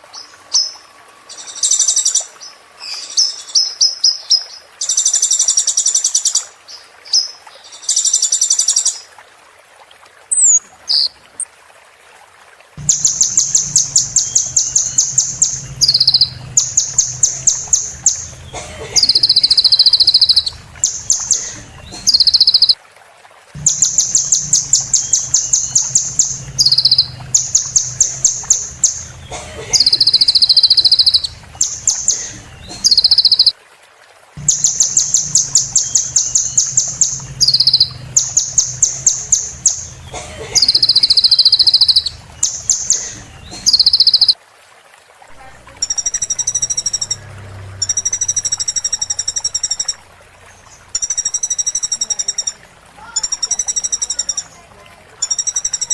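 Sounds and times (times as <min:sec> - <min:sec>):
low steady hum: 0:12.8 - 0:22.7, 0:23.5 - 0:33.2, 0:34.4 - 0:44.3, 0:45.3 - 0:55.6
sunbird song: 0:12.8 - 0:22.8, 0:23.6 - 0:33.5, 0:34.4 - 0:44.4, 0:45.8 - 0:54.6.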